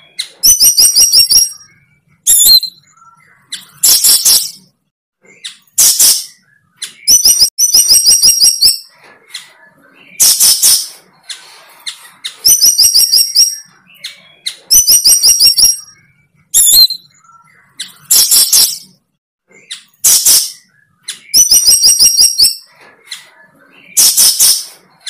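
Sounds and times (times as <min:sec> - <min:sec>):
bird chirping: 0:00.0 - 0:25.0
harsh rasping bird notes: 0:08.4 - 0:25.0.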